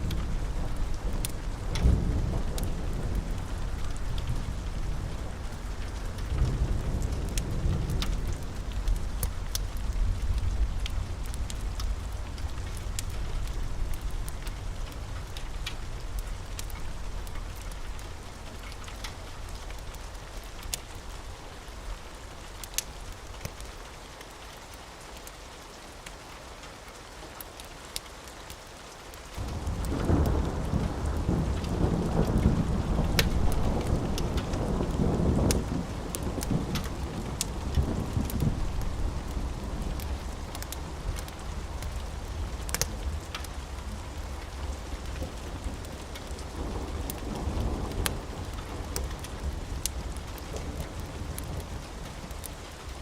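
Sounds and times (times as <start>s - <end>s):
thunder rumbling: 0.0s - 18.6s, 29.4s - 53.0s
steady rain: 0.0s - 53.0s
wood fire crackling: 0.0s - 53.0s.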